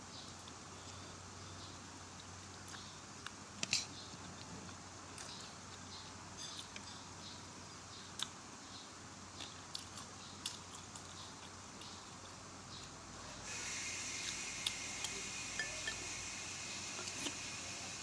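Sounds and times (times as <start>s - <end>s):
eating clicks and smacks: 8.1s - 8.4s, 9.3s - 13.0s.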